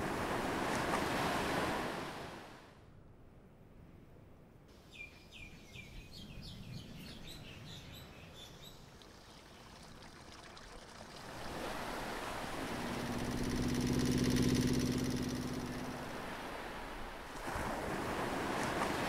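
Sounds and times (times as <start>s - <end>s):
wind: 0.0s - 19.0s
small birds chirping: 4.8s - 9.7s
motorboat engine hum: 8.8s - 19.0s
surf: 11.2s - 19.0s.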